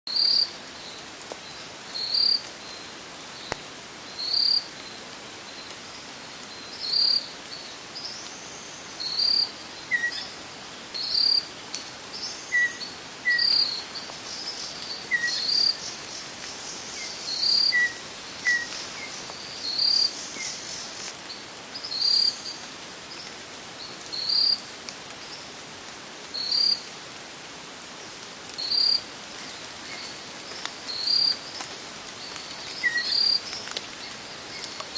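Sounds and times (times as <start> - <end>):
creek water hissing: 12.1 - 22.4
insect chirping in bursts: 13.3 - 20.9.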